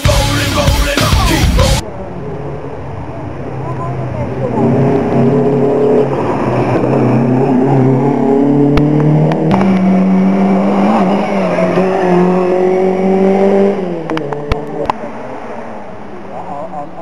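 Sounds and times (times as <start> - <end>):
rally car engine at high revs: 3.7 - 17.0.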